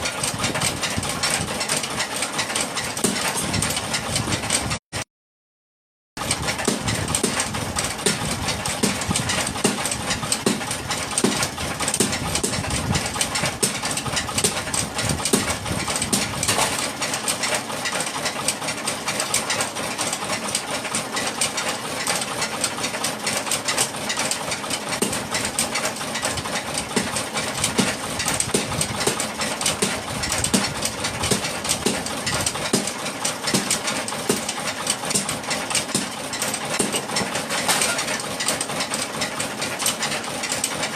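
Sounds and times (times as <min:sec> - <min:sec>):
workshop machinery clattering: 0:00.0 - 0:04.8, 0:06.2 - 0:40.9.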